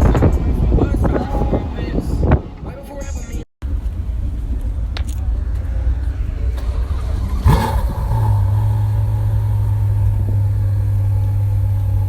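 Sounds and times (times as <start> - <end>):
car engine revving and idling: 3.6 - 12.0.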